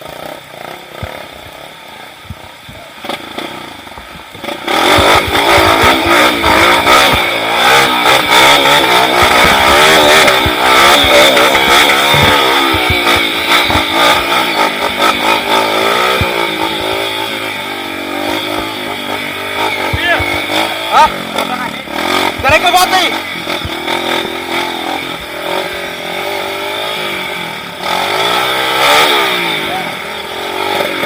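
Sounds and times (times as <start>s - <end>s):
motorcycle engine revving: 0.0s - 31.0s
knocks and clatter: 3.9s - 17.5s.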